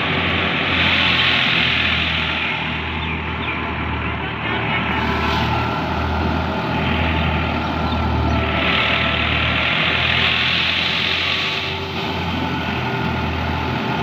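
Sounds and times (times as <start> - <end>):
broad rushing hiss: 0.0 - 3.0, 4.9 - 7.5, 8.4 - 14.0
heavy diesel engine running: 0.0 - 14.0.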